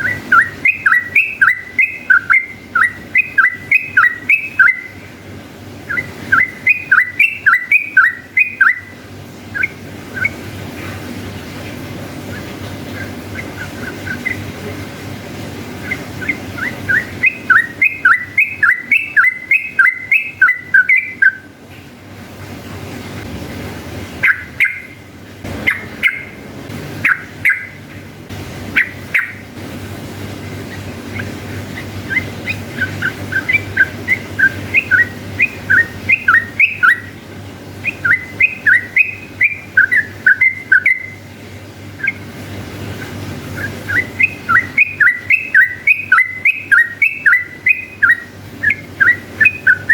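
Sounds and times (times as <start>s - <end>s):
bulbul singing whistled notes: 0.0s - 5.2s, 5.9s - 10.4s, 12.3s - 14.5s, 15.8s - 21.5s, 24.2s - 25.0s, 25.6s - 26.4s, 27.0s - 27.8s, 28.7s - 29.5s, 30.6s - 37.2s, 37.8s - 41.2s, 43.6s - 49.9s
low hum: 20.7s - 40.4s.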